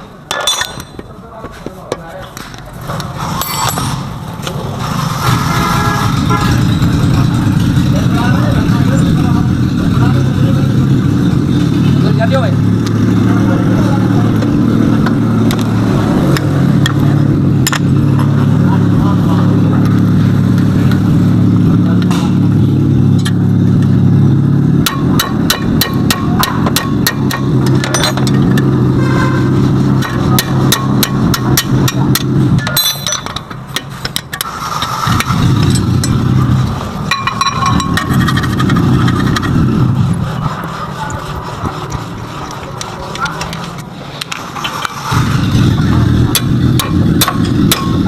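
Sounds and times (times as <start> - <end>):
sharp metallic clicks and knocks: 0.3 - 4.6, 14.4 - 18.4, 22.0 - 24.0, 24.8 - 40.2, 41.8 - 48.0
car engine running: 2.6 - 48.0.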